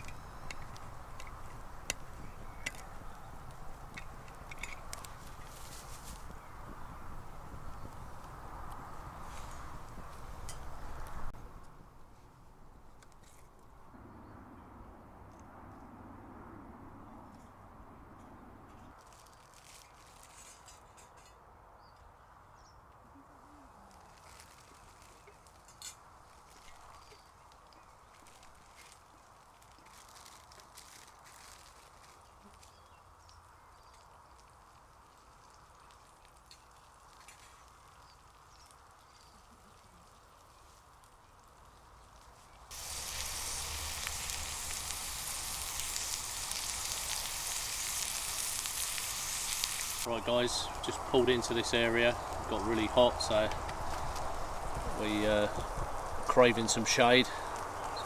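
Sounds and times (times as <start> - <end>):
food sizzling in a pan: 42.7 - 51.5.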